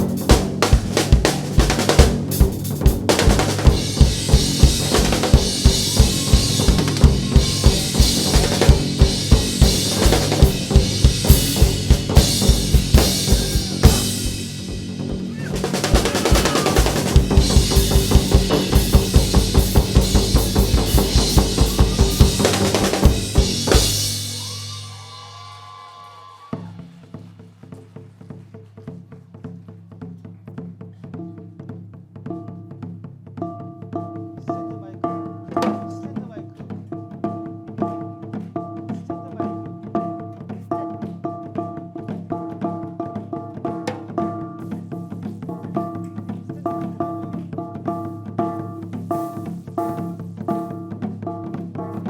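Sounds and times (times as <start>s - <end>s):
band music: 0.0s - 27.7s, 34.0s - 52.0s
drum kit fast beat: 0.0s - 28.4s, 42.2s - 52.0s.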